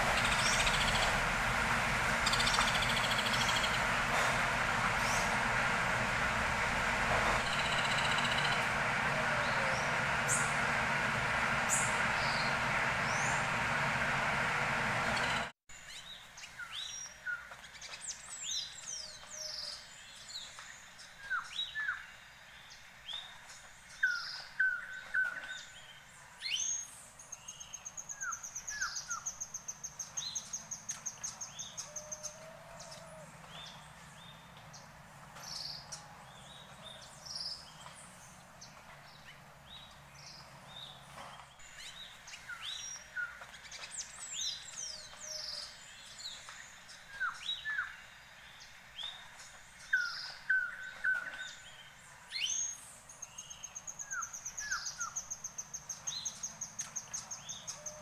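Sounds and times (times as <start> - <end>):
bird trilling: 2.2 - 3.8.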